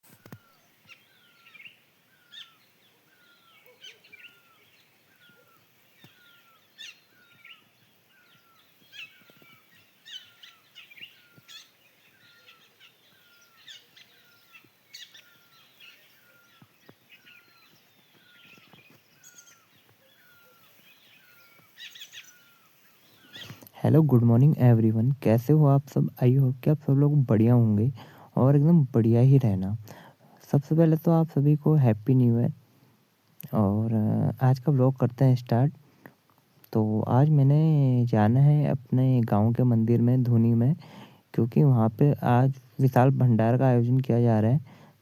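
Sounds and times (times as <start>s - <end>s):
birds chirping: 0.0s - 24.8s
outdoor background hiss: 0.0s - 45.0s.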